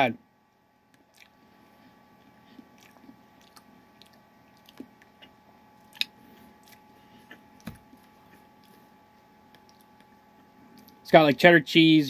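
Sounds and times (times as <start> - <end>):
faint steady hum: 0.0 - 12.0
person chewing with mouth clicks: 0.9 - 8.9, 9.5 - 11.0.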